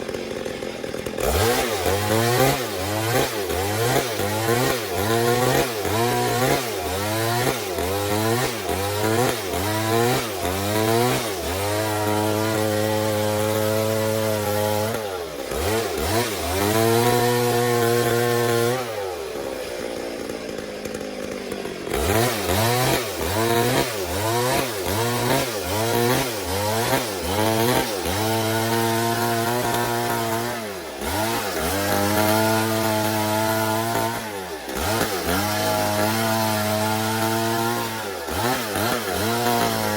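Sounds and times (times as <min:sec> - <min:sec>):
chainsaw cutting a log: 0:00.0 - 0:39.9.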